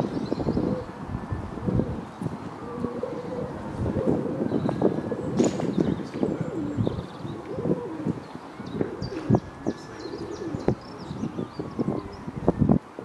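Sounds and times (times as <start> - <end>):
low cooing bird calls: 0.0 - 13.0.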